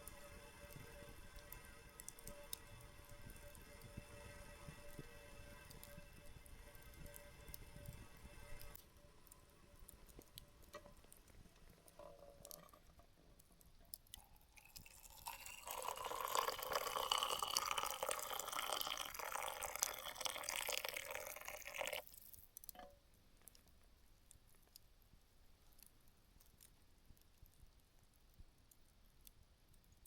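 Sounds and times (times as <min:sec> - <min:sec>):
liquid being poured: 0:00.0 - 0:22.8.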